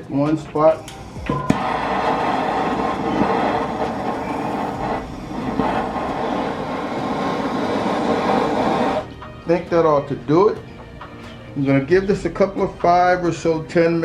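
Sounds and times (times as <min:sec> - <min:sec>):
torch flame hissing: 0:00.0 - 0:09.2.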